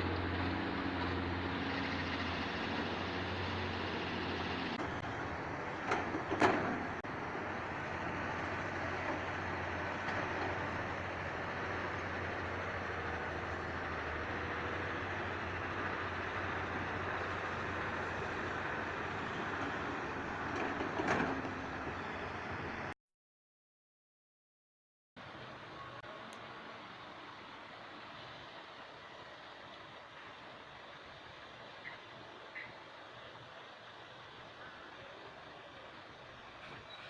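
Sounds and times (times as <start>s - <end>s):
excavator diesel engine running: 0.0s - 22.9s.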